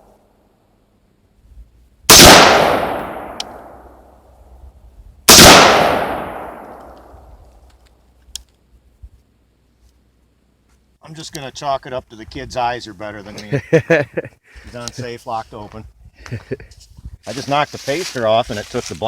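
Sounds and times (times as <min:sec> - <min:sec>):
loud gunshots: 0:02.1 - 0:03.8, 0:05.3 - 0:07.0
faint click: 0:06.7 - 0:09.2.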